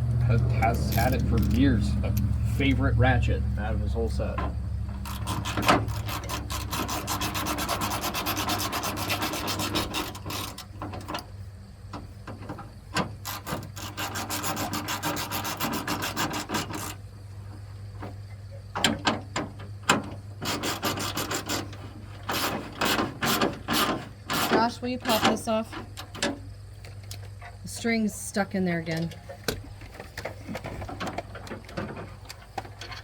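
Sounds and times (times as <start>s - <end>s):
hand ratchet clicking: 0.6s - 2.3s, 5.0s - 10.7s.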